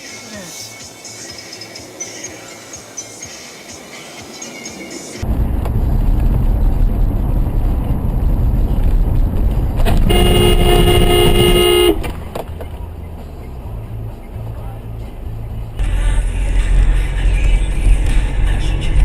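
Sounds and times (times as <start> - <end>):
road and engine rumble: 0.0 - 19.0
car horn held: 9.9 - 12.1.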